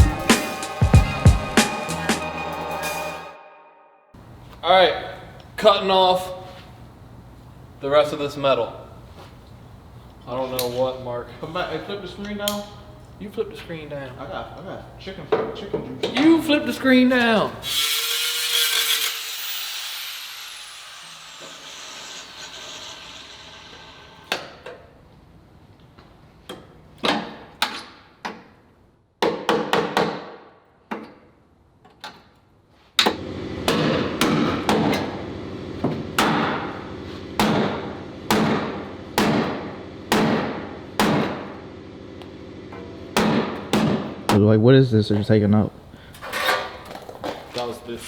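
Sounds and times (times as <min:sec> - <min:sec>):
cut-off tool whine: 0:17.6 - 0:24.6
hammer striking metal: 0:37.4 - 0:41.5.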